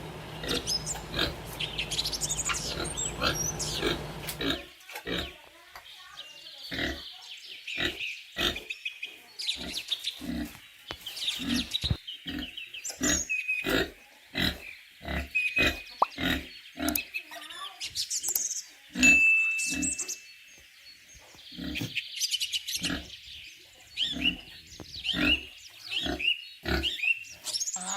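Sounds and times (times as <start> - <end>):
pig grunting: 0.4 - 5.4, 6.7 - 7.0, 7.8 - 8.7, 9.6 - 10.6, 11.4 - 17.0, 21.5 - 21.9, 22.8 - 23.2, 25.1 - 27.0.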